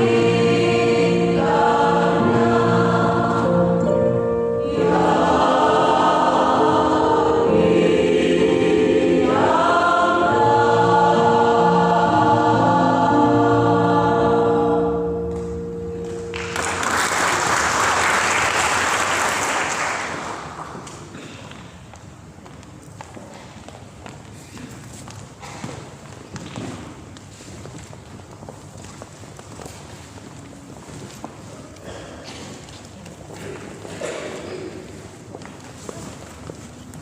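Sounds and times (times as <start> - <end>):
choir singing: 0.0 - 17.8
audience applause: 16.3 - 20.9.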